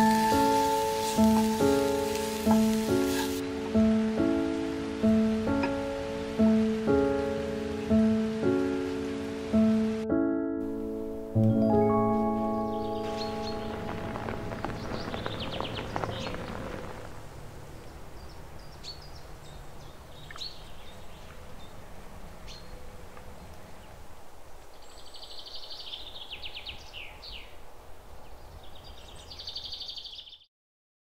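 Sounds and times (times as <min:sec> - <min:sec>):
light rain hissing: 0:00.0 - 0:10.0, 0:12.1 - 0:29.9
piano tune: 0:00.0 - 0:17.1
birds chirping and trilling: 0:12.2 - 0:16.9, 0:17.8 - 0:24.0, 0:24.7 - 0:30.4.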